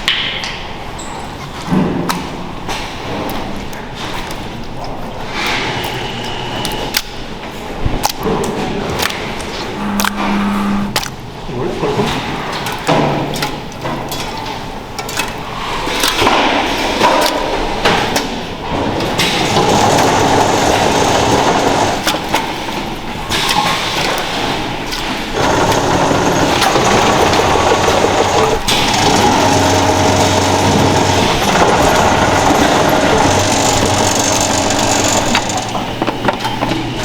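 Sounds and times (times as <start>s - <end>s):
machinery running: 8.6s - 11.3s, 19.4s - 22.2s, 25.3s - 37.0s.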